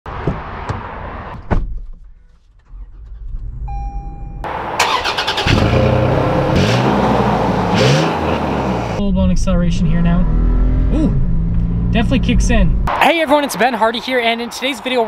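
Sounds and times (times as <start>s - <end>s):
car starter cranking: 2.6s - 3.6s, 4.8s - 6.1s
short beep: 3.6s - 4.5s
car engine revving: 4.5s - 13.0s.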